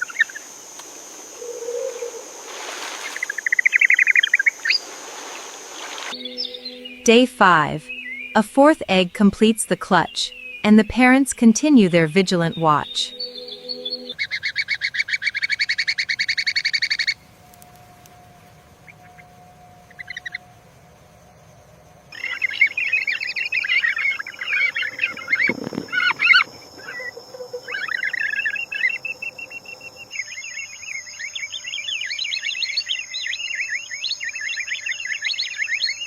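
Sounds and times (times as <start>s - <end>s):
bird trilling: 6.1s - 17.2s, 22.2s - 30.7s
birds chattering: 6.1s - 17.2s, 22.2s - 30.6s.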